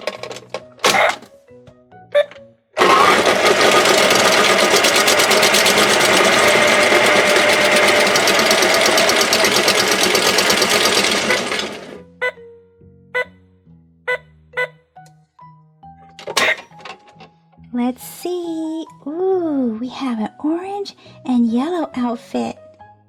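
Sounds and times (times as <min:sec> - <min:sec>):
toy washing machine whirring rattle: 0:00.0 - 0:00.8, 0:02.8 - 0:12.0.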